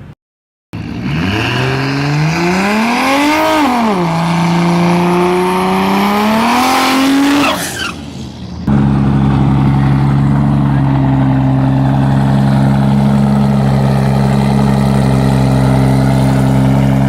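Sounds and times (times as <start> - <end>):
car engine revving hard: 0.8 - 8.0.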